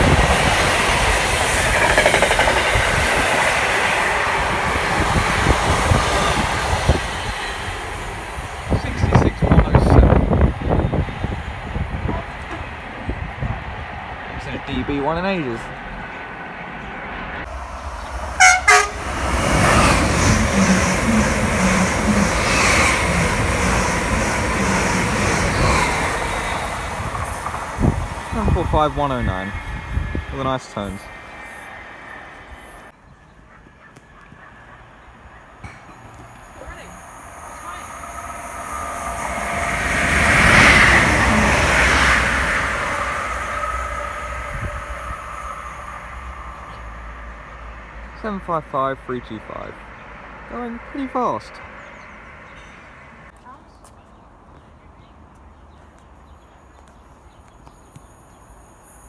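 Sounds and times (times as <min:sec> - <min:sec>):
rush of train wheels and air: 0:00.0 - 0:33.0, 0:34.3 - 0:48.2
two-tone train horn: 0:18.4 - 0:19.2, 0:20.2 - 0:22.7.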